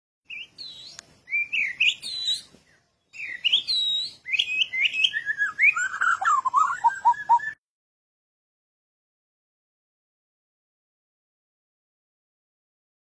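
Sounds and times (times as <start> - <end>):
songbird singing: 0.3 - 7.6.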